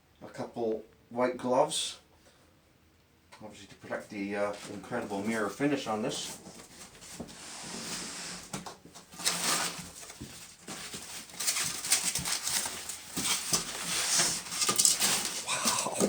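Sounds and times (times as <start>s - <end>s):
packaging rustling and crinkling: 6.5s - 16.0s.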